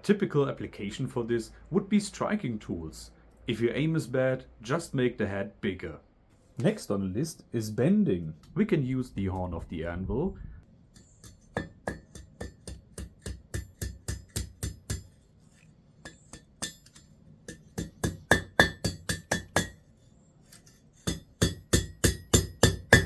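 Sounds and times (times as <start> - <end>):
hammer striking steel on anvil: 10.9 - 15.2, 16.0 - 19.9, 20.5 - 23.0.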